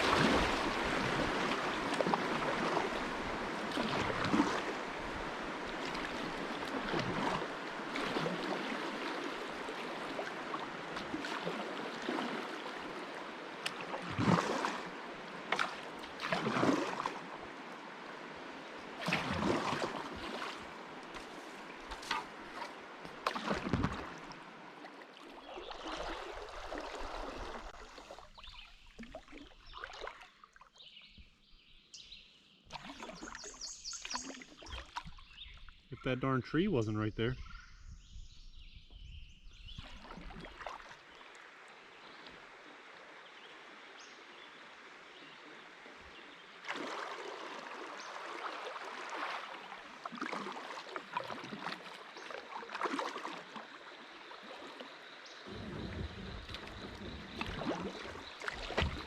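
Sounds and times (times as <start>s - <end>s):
river water rushing: 0.0s - 27.8s, 46.6s - 54.9s
paddle strokes splashing: 0.0s - 31.2s, 32.7s - 35.7s, 39.7s - 42.5s, 45.2s - 59.0s.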